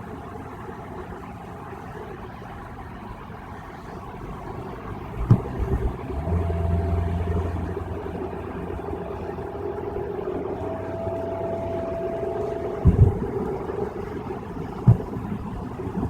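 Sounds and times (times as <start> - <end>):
faint steady whine: 0.0 - 16.0
road noise: 0.0 - 16.0
car engine drone: 0.1 - 16.0
low hum: 4.0 - 16.0
sharp thump: 5.2 - 6.0, 14.8 - 15.3.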